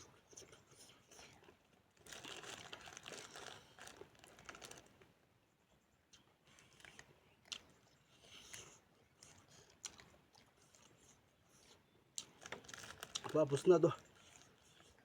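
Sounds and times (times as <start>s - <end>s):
person chewing crunchy food: 6.5s - 13.4s.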